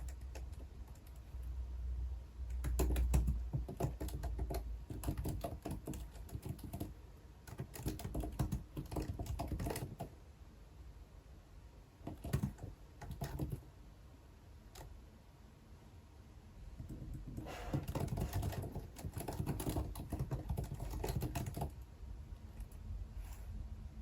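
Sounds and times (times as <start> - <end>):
typing on computer keyboard: 0.0 - 1.5, 2.5 - 10.2, 12.0 - 13.7, 14.7 - 14.9, 16.8 - 21.8.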